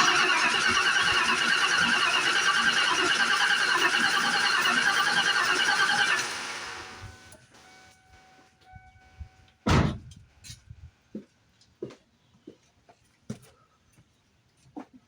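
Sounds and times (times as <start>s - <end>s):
heavy thunk: 9.7s - 10.2s.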